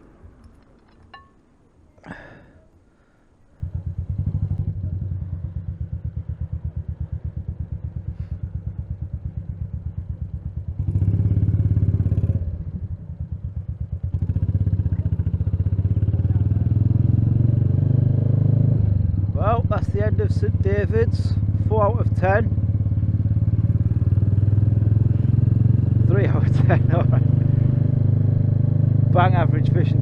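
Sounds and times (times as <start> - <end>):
motorcycle engine starting and idling: 3.6 - 17.0.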